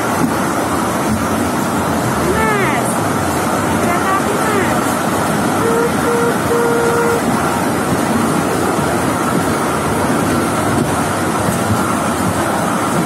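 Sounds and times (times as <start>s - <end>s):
small train running on track: 0.0s - 13.0s
wind buffeting microphone: 0.0s - 13.0s
short pitched tone: 5.6s - 7.3s.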